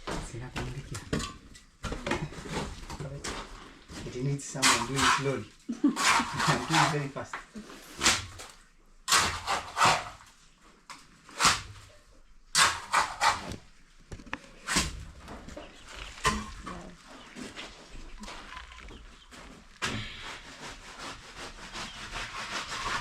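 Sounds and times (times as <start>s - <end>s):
trowel scraping wet cement: 4.1s - 7.1s, 9.1s - 10.2s, 12.6s - 13.6s, 19.4s - 23.0s.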